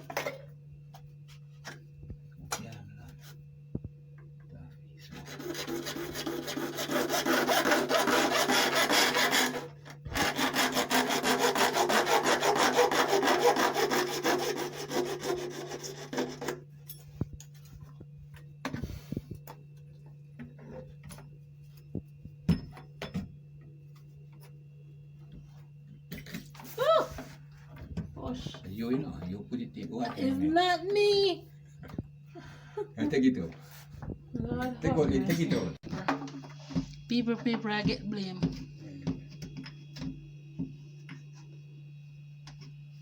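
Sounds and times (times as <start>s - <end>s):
steady low hum: 0.0s - 43.0s
hand saw cutting plastic pipe: 5.0s - 16.6s.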